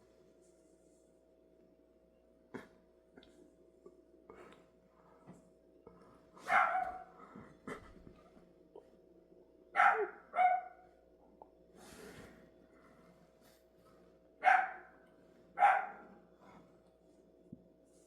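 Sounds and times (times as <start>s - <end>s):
faint steady hum: 0.0s - 18.0s
dog barking: 6.4s - 7.1s, 9.8s - 10.9s, 14.4s - 15.0s, 15.6s - 16.1s.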